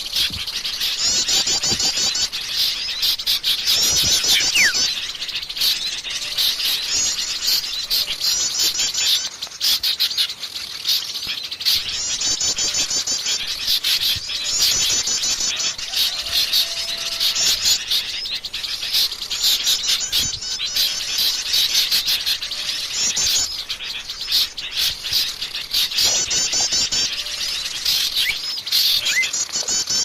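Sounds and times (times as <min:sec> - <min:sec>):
rapid bird trills: 0:00.0 - 0:30.0
songbirds chattering: 0:00.0 - 0:30.0
falling whistle: 0:04.3 - 0:04.9.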